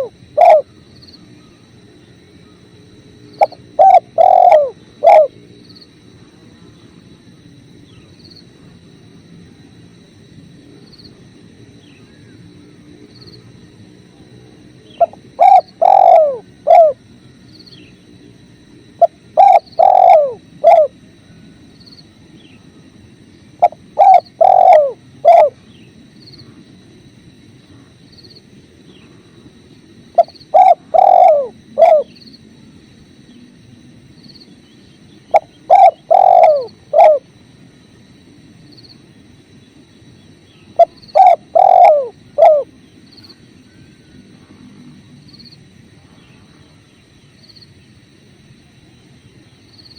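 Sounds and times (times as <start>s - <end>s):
dove cooing: 0.0s - 0.8s, 3.3s - 5.4s, 14.9s - 17.1s, 19.0s - 21.5s, 23.6s - 25.8s, 30.1s - 32.2s, 35.3s - 37.4s, 40.7s - 44.8s.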